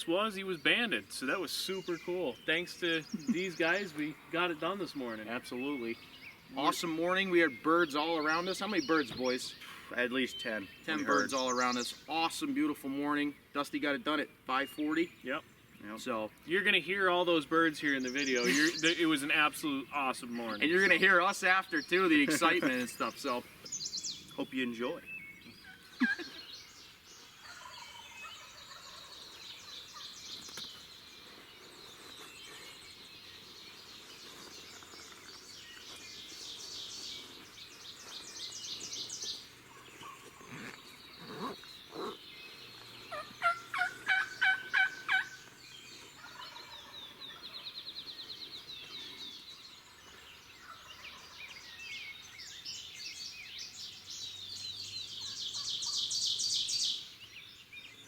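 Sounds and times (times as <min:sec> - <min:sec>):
songbirds trilling: 0:00.0 - 0:58.0
turkey gobbling: 0:27.4 - 0:30.1, 0:43.1 - 0:45.5, 0:46.2 - 0:47.5.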